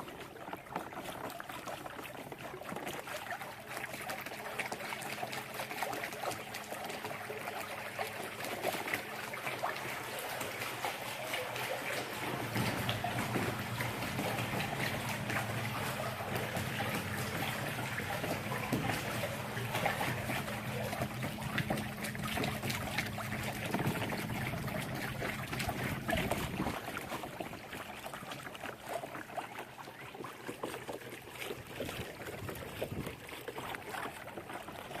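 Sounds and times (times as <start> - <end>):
water splashing against hull: 0.0 - 35.0.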